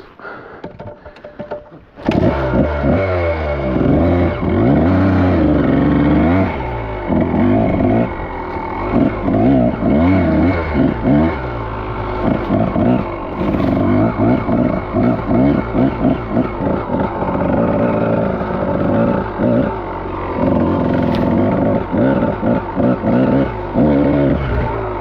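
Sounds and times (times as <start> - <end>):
dirt bike engine revving: 2.0 - 25.0.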